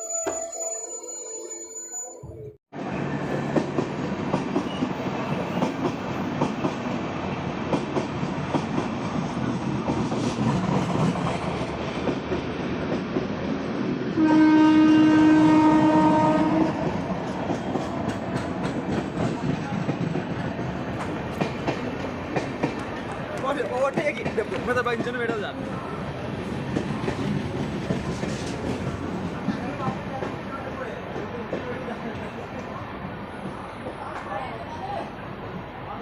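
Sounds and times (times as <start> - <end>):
train horn: 14.2 - 17.1.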